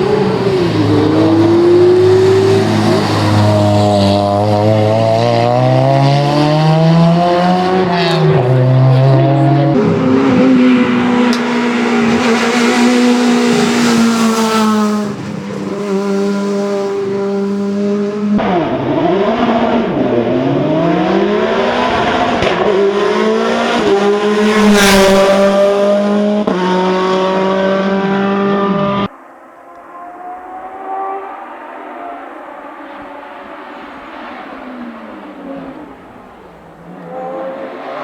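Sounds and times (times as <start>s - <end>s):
race car engines revving: 0.0s - 38.0s
race car passing close: 0.0s - 38.0s.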